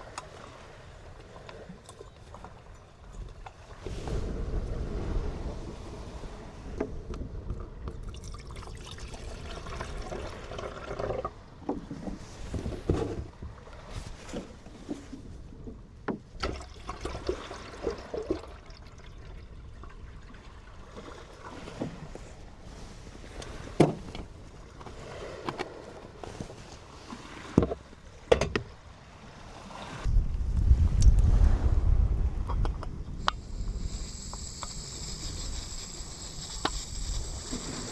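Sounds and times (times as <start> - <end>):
low outdoor background: 30.1 - 37.9.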